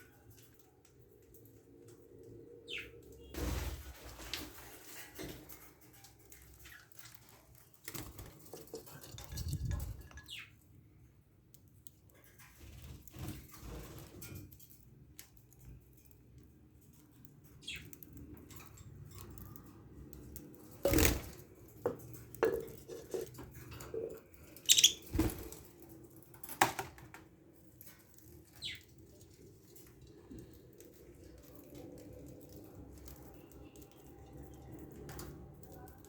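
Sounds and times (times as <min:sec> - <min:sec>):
budgies chirping: 0:24.7 - 0:25.1.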